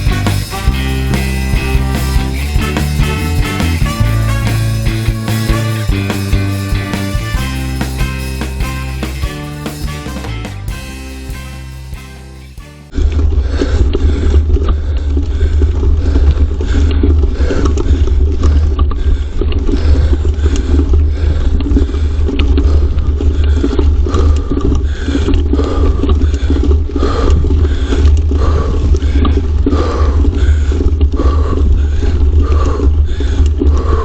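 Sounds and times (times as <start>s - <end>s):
music: 0.0s - 12.9s
rumbling ride noise: 0.0s - 13.1s.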